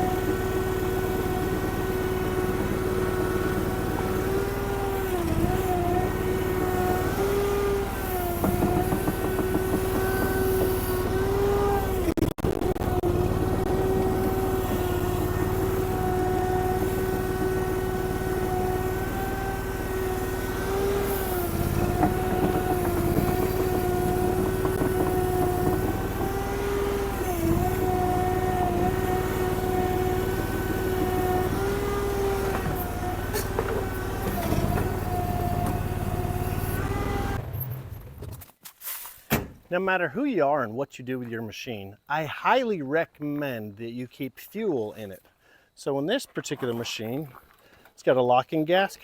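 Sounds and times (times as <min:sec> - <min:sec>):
mini skid steer engine running: 0:00.0 - 0:38.5.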